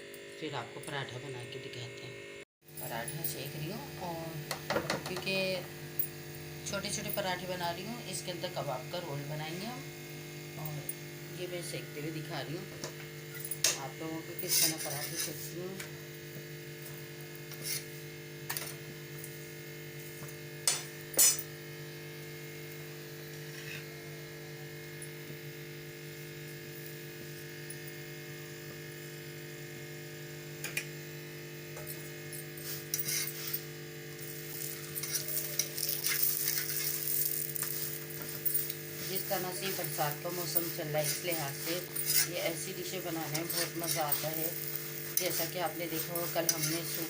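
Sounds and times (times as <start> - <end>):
steady electrical hum: 0.0 - 47.0
faint sizzling: 2.9 - 47.0
utensil scraping griddle: 13.3 - 15.9, 17.3 - 18.6, 23.5 - 24.0, 32.4 - 47.0.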